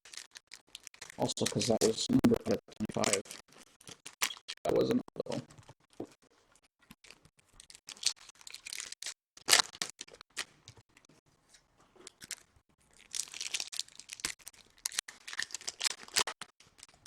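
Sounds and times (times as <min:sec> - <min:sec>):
foil wrappers rustling: 0:00.0 - 0:02.0, 0:07.0 - 0:10.8, 0:12.0 - 0:17.0.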